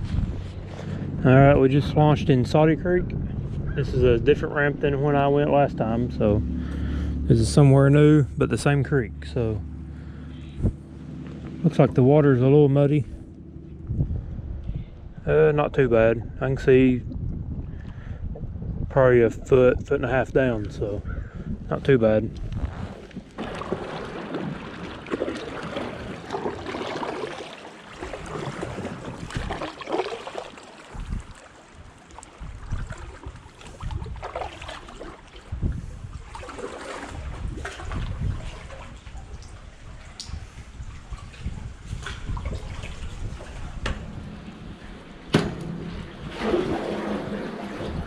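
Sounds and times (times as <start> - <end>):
paddle strokes in water: 22.4 - 48.0
water splashing and dripping: 23.0 - 48.0
sharp knocks: 45.3 - 46.4.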